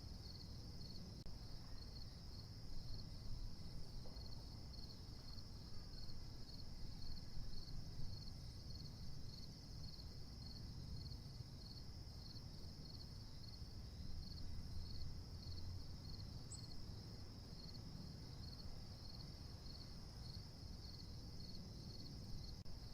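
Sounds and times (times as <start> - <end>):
insects chirping: 0.0 - 22.9.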